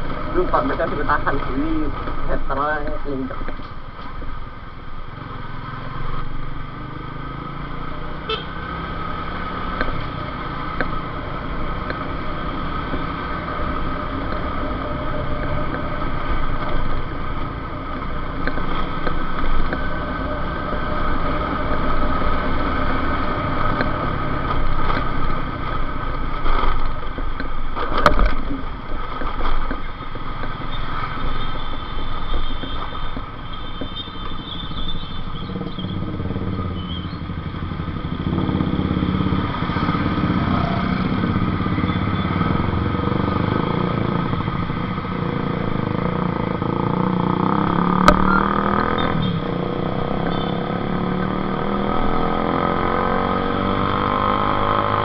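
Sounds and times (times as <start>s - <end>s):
motorcycle engine running: 28.0s - 55.0s.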